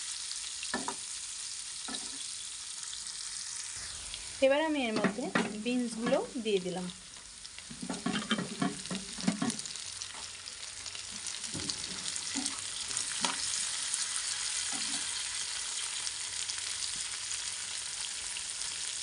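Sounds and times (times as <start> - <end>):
vegetables sizzling in hot oil: 0.0 - 19.0
steel spatula scraping a pan: 7.8 - 9.6, 14.7 - 15.1.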